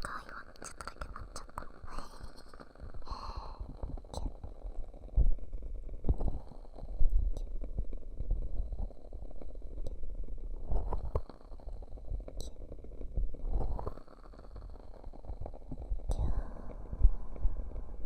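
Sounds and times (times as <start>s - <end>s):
candle wick crackles: 0.0s - 4.9s
ear cupping rumbling and squishing: 0.0s - 18.0s.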